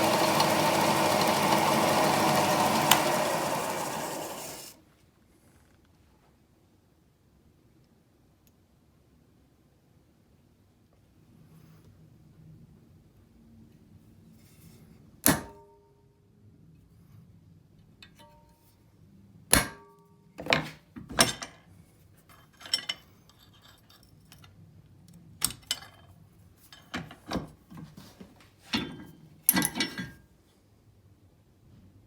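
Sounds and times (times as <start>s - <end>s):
metal tools clinking on workbench: 22.3s - 24.6s, 28.7s - 30.2s.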